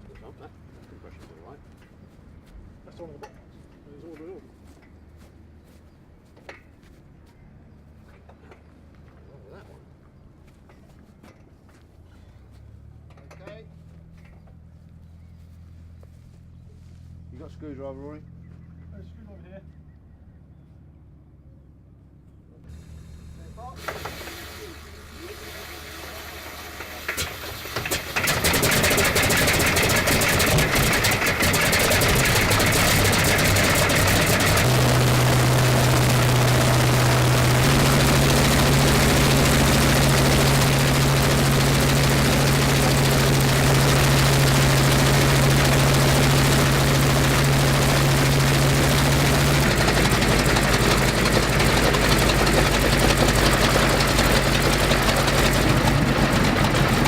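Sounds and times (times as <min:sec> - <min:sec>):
radial aircraft engine running: 0:22.6 - 0:25.4, 0:26.0 - 0:57.0.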